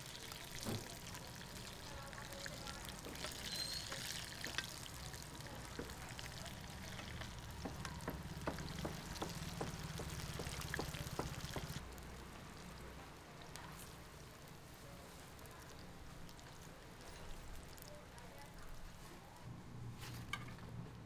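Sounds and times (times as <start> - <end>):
food sizzling in oil: 0.0 - 12.8.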